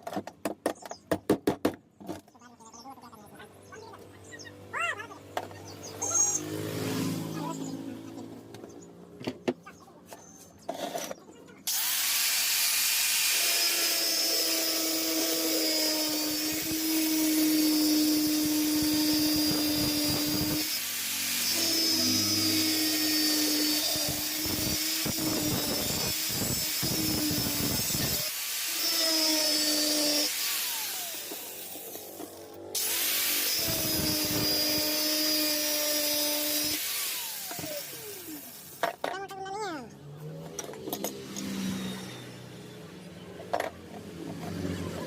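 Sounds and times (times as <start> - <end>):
electric power tool running: 5.2 - 8.7, 11.7 - 39.0, 40.6 - 42.7.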